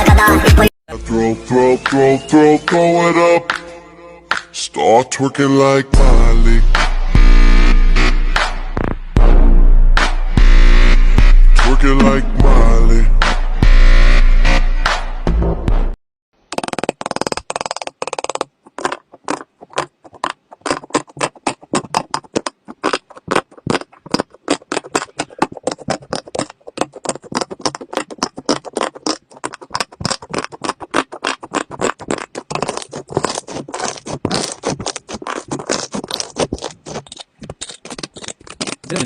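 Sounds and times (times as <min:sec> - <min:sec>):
rapid irregular clicking: 0:16.5 - 0:39.0.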